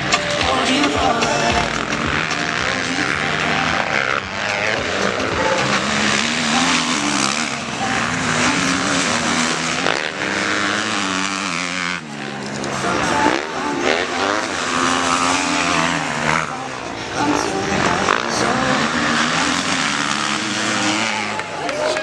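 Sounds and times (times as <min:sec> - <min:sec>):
motocross bike engines revving: 0:00.0 - 0:22.0.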